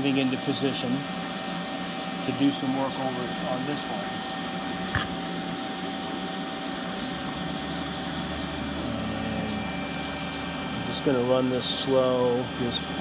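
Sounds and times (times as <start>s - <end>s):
deeper hum: 4.5s - 13.0s.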